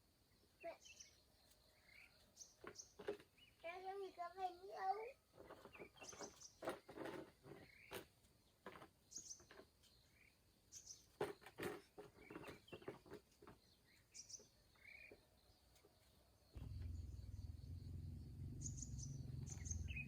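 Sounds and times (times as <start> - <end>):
faint bird chirps: 0.0 - 20.0
handling knocks and clicks: 10.9 - 17.0.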